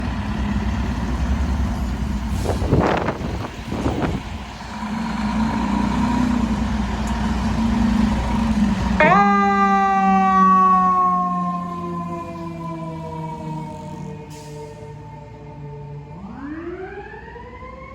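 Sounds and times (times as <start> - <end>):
diesel engine rumbling: 0.0 - 16.5
air brake hissing: 2.2 - 3.3.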